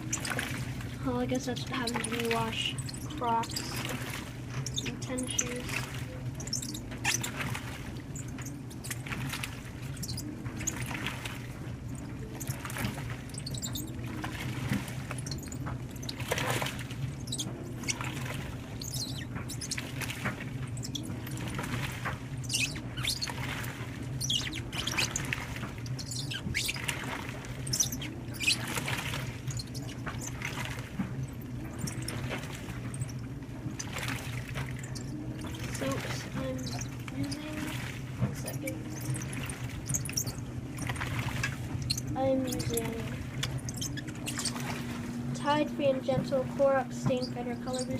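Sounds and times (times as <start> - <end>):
washer low hum: 0.0 - 47.9
water sloshing in washer: 0.0 - 47.9
shoes squeaking against drum: 43.4 - 44.8.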